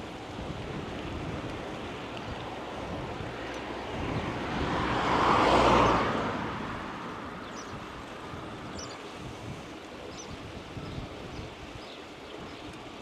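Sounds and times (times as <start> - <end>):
car passing by: 1.8 - 9.4.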